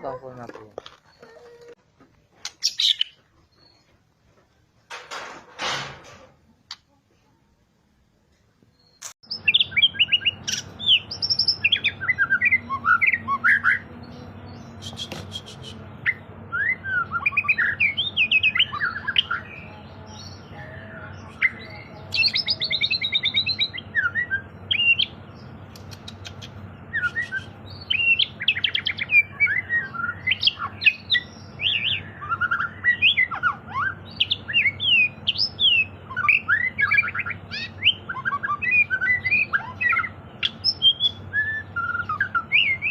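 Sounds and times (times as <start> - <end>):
steady low hum: 9.4 - 42.9
bird singing whistled phrases: 14.8 - 19.7, 26.9 - 42.9.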